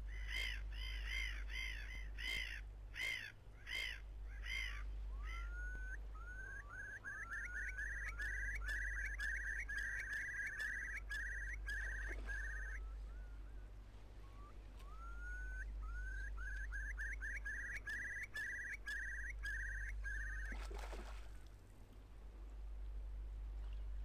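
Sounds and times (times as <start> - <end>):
bird whistling and trilling: 5.2 - 13.6, 14.2 - 20.7
lure splashing on water: 20.5 - 21.6.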